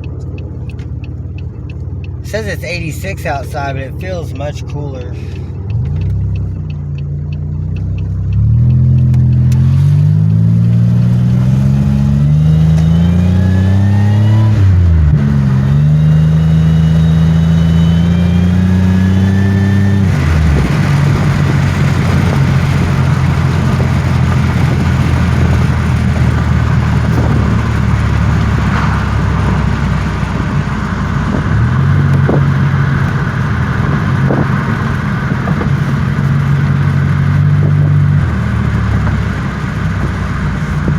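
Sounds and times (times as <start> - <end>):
car engine accelerating: 0.0 - 40.9
road noise: 0.0 - 40.9.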